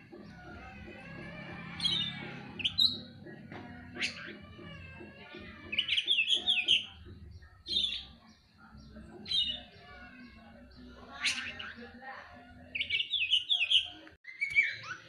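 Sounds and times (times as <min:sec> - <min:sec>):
bird singing whistled notes: 0:01.8 - 0:03.1, 0:12.8 - 0:15.0.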